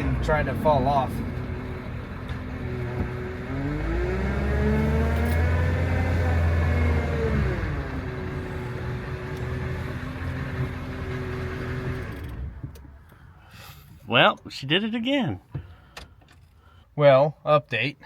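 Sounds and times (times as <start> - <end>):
diesel truck engine revving: 0.0 - 12.6.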